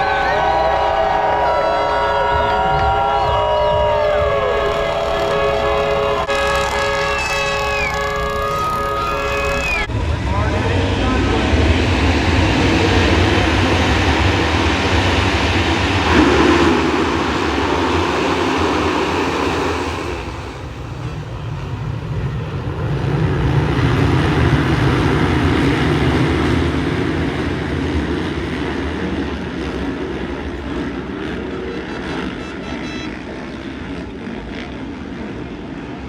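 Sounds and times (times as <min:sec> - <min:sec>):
dirt bike engines running: 0:00.0 - 0:21.4.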